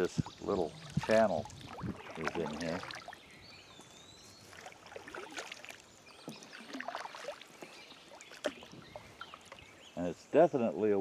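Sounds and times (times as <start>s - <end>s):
water dripping: 0.0s - 3.9s
paddle swishing through water: 0.0s - 10.0s.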